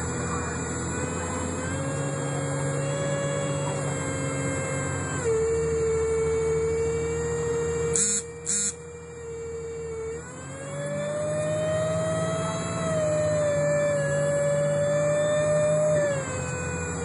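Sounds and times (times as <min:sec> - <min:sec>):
bus rumble: 0:00.0 - 0:17.0
bus whine: 0:00.0 - 0:17.0
short high beeps: 0:08.0 - 0:08.8.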